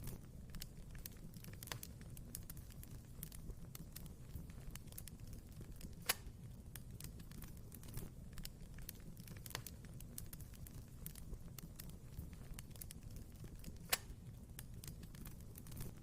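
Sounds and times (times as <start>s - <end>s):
wood fire crackling: 0.0s - 16.0s
loud pop of fire: 5.9s - 6.4s.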